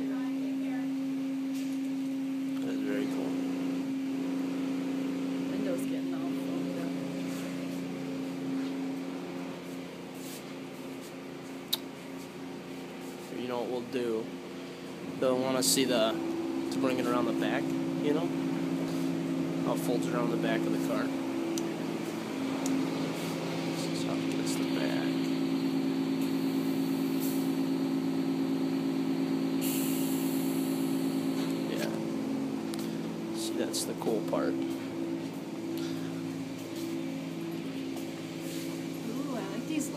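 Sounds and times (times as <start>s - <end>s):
car wash mechanical hum: 0.0s - 39.9s
foam spraying hiss: 29.6s - 31.3s.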